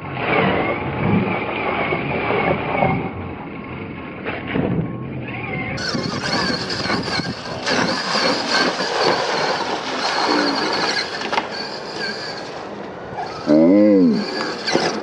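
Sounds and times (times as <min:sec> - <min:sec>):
electric motor whine: 0:05.4 - 0:15.0
pitch-bending sound: 0:13.3 - 0:15.0.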